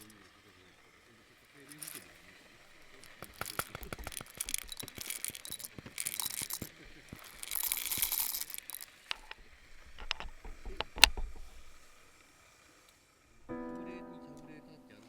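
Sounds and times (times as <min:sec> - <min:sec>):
small objects clicking and clinking: 0:01.7 - 0:12.0
rustling or crinkling: 0:01.7 - 0:12.1.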